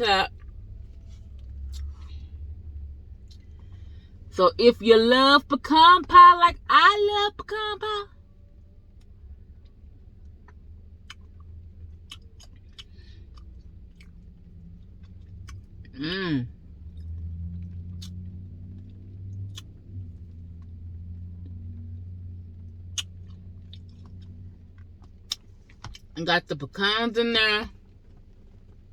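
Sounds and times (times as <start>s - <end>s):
steady low hum: 0.0s - 28.9s
person chewing ice cream: 0.4s - 2.3s, 9.5s - 16.0s, 16.7s - 20.7s, 22.6s - 26.1s
wet mouth clicks and smacks: 1.6s - 2.1s, 17.8s - 19.8s, 22.8s - 24.4s.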